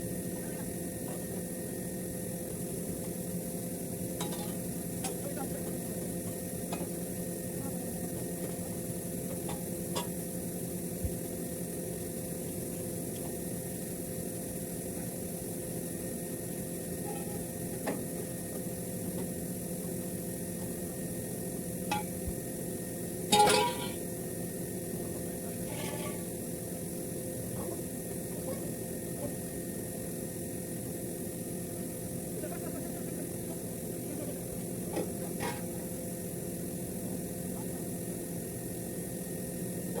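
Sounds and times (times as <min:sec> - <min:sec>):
steady hum and hiss: 0:00.0 - 0:40.0
metal clatter: 0:23.3 - 0:24.0.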